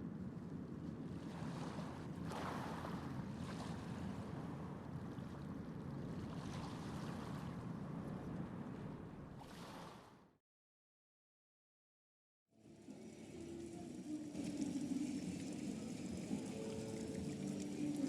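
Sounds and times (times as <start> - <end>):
ship engine rumble: 12.5 - 18.0.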